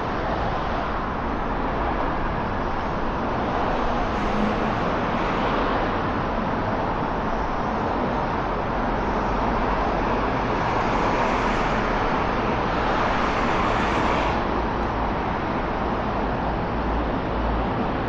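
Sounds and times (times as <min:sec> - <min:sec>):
passing cars: 0:00.0 - 0:18.0.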